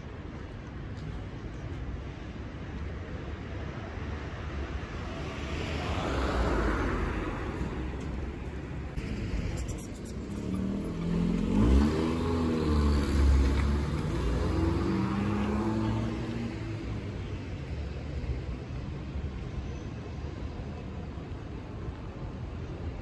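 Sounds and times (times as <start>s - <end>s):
engine revving: 10.7s - 13.2s.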